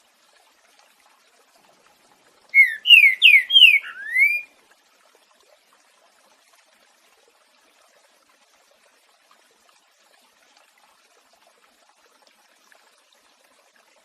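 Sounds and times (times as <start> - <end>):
bird whistled song: 2.5 - 4.5.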